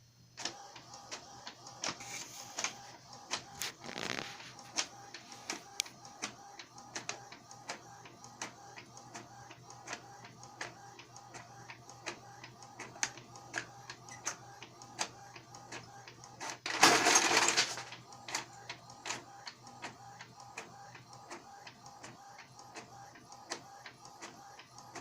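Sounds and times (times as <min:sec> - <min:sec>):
printer humming and clicking: 0:00.4 - 0:25.0.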